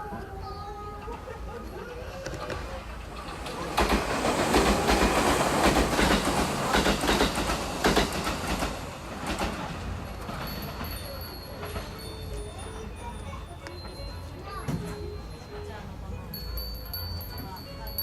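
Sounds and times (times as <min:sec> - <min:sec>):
train rattling on rails: 0:00.0 - 0:18.0.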